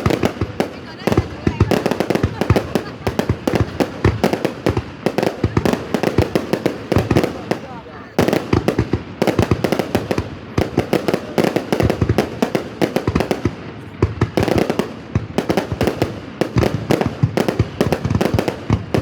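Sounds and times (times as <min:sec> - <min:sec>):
fireworks bangs and cracks: 0:00.0 - 0:19.0.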